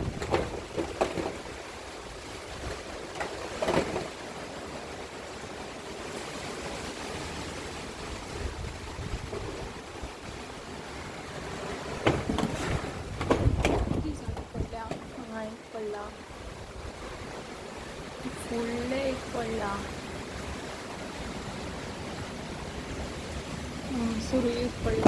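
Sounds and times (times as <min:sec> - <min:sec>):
storm wind rushing: 0:00.0 - 0:00.8, 0:06.8 - 0:15.2.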